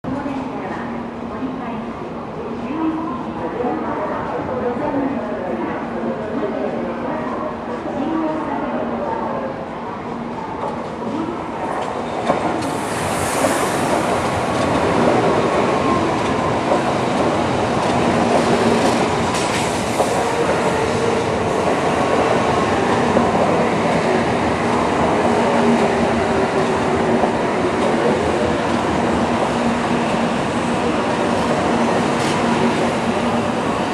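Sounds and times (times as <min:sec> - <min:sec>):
train wheels on rails: 0:10.4 - 0:33.9.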